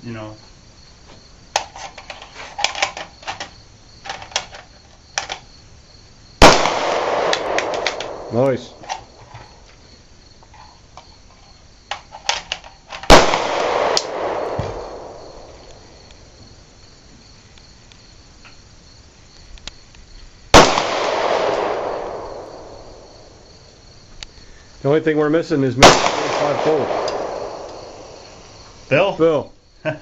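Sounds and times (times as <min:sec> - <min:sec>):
gunshots with rolling echo: 0:06.4 - 0:09.2, 0:13.1 - 0:16.4, 0:20.5 - 0:23.8, 0:25.7 - 0:29.2
light clicks: 0:19.4 - 0:20.0.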